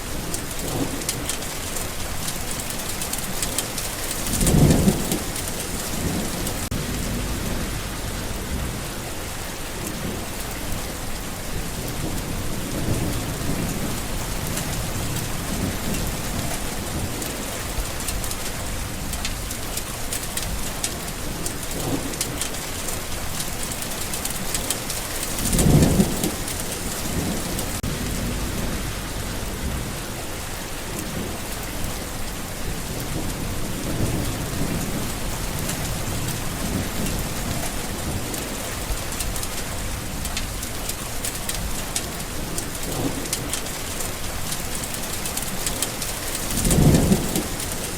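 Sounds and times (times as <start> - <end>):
low thunder rumbling: 0.0 - 19.8, 20.4 - 40.9, 41.5 - 47.9
steady rain falling: 0.0 - 47.9.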